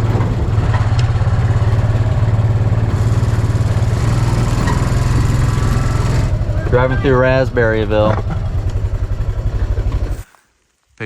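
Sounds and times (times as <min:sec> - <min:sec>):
small engine running: 0:00.0 - 0:10.3.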